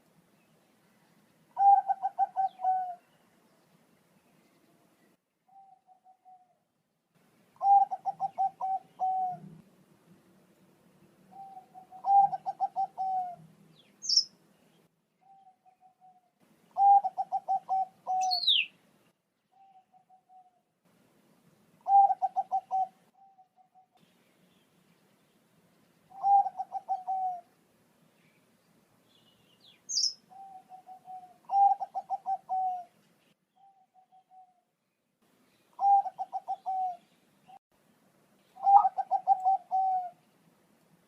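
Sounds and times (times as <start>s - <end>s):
dove cooing: 1.6s - 3.2s, 7.6s - 9.6s, 11.3s - 13.5s, 15.2s - 18.7s, 19.6s - 20.6s, 21.8s - 23.9s, 26.1s - 27.5s, 30.0s - 33.0s, 35.8s - 37.0s, 38.6s - 40.2s
bird chirping high and falling: 13.9s - 14.3s, 16.8s - 18.7s, 29.4s - 32.8s.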